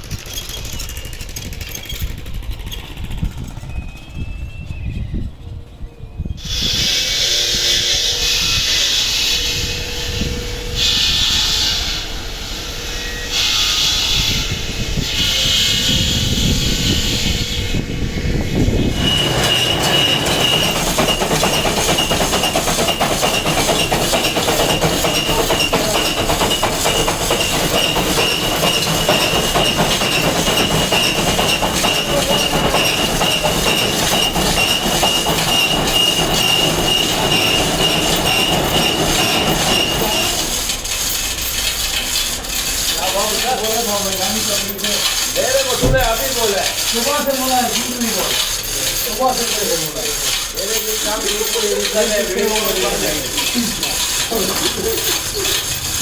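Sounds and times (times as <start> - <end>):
power grinder grinding stone: 18.8 - 56.0.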